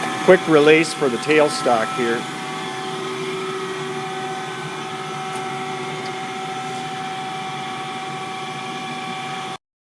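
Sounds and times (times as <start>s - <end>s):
grinder machine hum: 0.0s - 9.6s.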